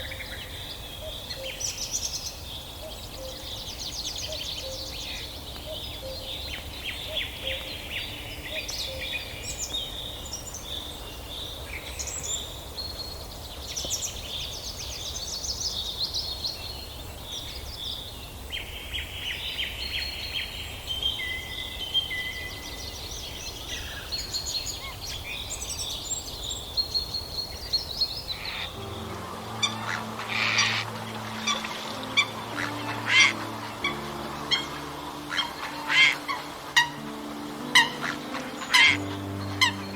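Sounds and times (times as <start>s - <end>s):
songbirds singing and chirping: 0.0s - 39.9s
ducks and geese calling: 28.4s - 39.9s.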